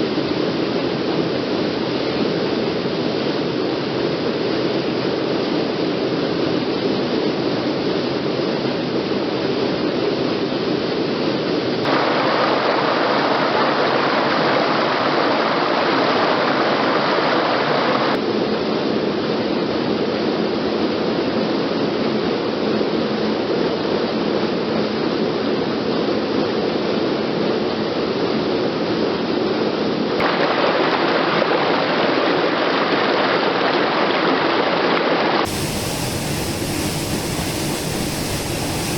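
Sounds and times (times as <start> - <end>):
waterfall roaring: 35.5 - 38.9.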